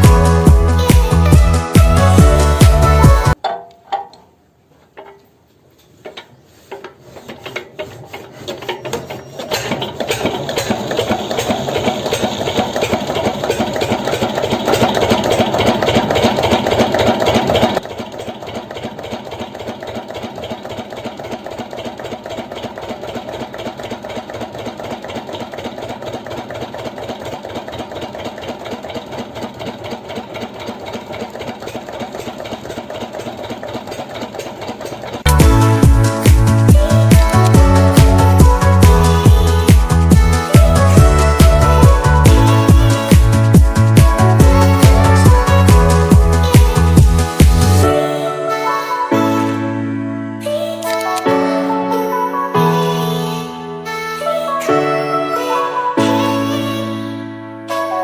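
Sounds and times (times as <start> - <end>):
small motor rattling: 6.0 - 48.0.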